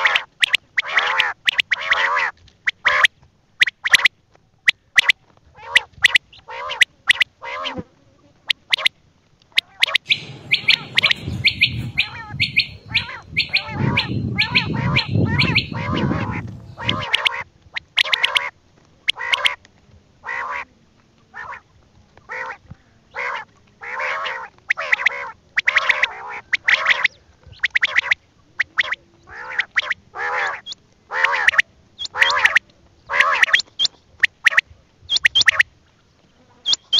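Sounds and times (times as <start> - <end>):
fast high chirping: 0.4 - 0.7, 3.6 - 4.1, 8.5 - 8.9, 9.6 - 17.4, 18.0 - 18.5, 31.4 - 32.6, 33.3 - 35.6, 36.7 - 36.9
bird giving harsh calls: 9.6 - 17.4, 18.0 - 18.5, 23.2 - 35.6
low rumbling noise: 10.0 - 17.2.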